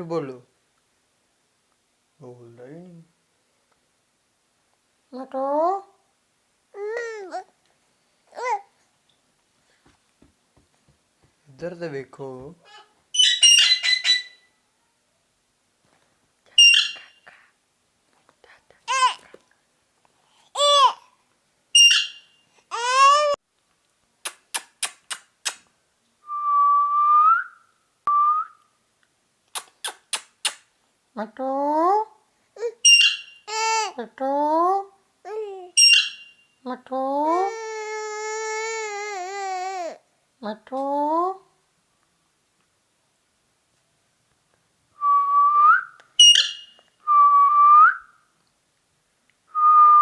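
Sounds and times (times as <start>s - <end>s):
parrot chirp: 13.1s - 14.6s, 16.6s - 17.4s, 21.8s - 22.4s, 32.8s - 33.6s, 35.8s - 36.6s, 46.2s - 46.9s
quick sharp clicks: 24.2s - 25.7s, 29.5s - 30.7s
drawn-out whistles: 26.2s - 28.6s, 45.0s - 48.2s, 49.5s - 50.0s
rising whistle: 26.3s - 28.6s.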